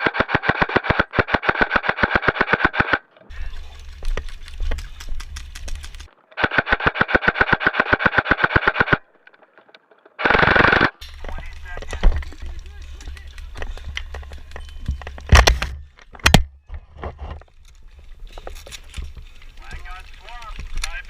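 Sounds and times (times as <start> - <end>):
airsoft rifle full-auto bursts: 0.0 - 3.0, 5.4 - 9.0, 10.2 - 11.0.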